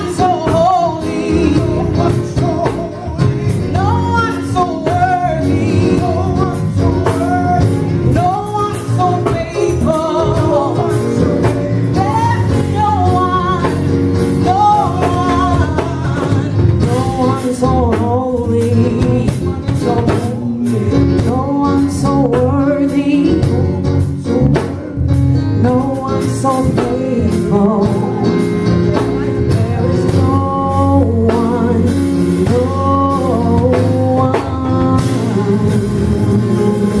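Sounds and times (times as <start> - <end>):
live band with drum kit: 0.0 - 37.0.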